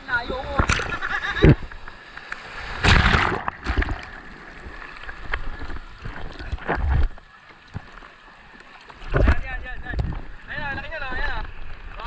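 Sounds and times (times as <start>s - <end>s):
water sloshing and splashing: 0.3s - 12.0s
wind rumbling on microphone: 9.1s - 12.0s.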